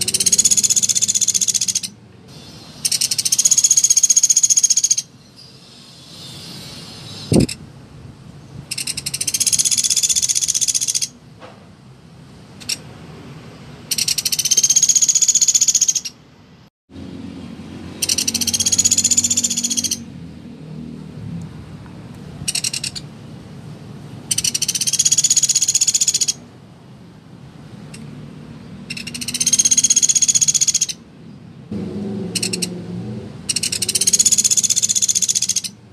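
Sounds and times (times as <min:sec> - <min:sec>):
woodpecker rattling trill: 0:00.0 - 0:05.1, 0:08.7 - 0:11.2, 0:13.9 - 0:16.2, 0:18.0 - 0:20.1, 0:22.5 - 0:23.0, 0:24.3 - 0:26.4, 0:28.9 - 0:31.0, 0:32.3 - 0:32.8, 0:33.5 - 0:35.8.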